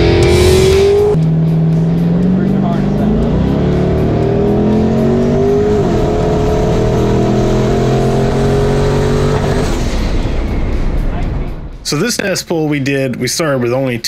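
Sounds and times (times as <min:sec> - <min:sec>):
turbocharged engine accelerating hard: 0:00.0 - 0:10.4.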